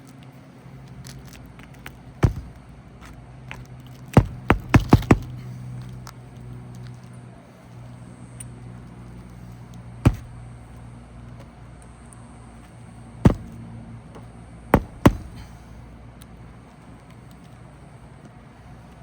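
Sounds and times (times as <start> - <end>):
nails driven into roof shingles: 2.2 - 2.6, 3.5 - 5.6, 10.1 - 10.5, 13.3 - 13.6, 14.8 - 15.8.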